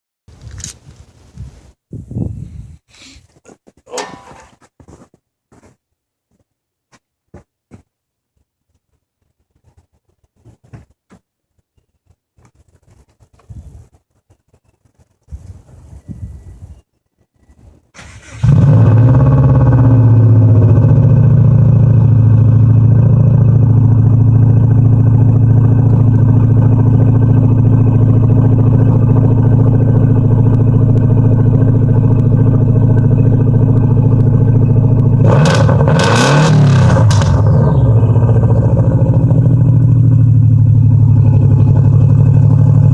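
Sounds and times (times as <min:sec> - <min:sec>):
car engine starting and idling: 0:17.9 - 0:42.9
engine revving: 0:18.0 - 0:42.9.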